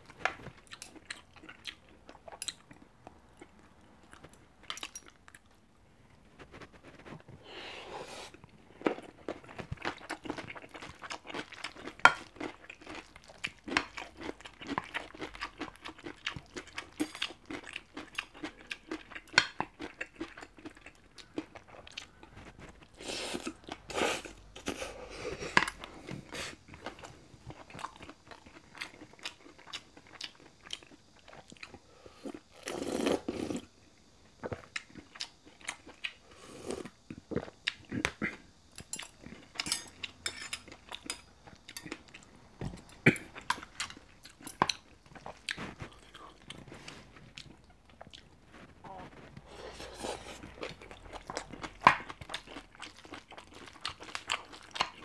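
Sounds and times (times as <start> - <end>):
person sipping: 7.4 - 8.4, 31.9 - 33.7, 36.3 - 37.0, 48.9 - 50.7
wet chewing with crunches: 8.3 - 33.2, 36.9 - 55.0.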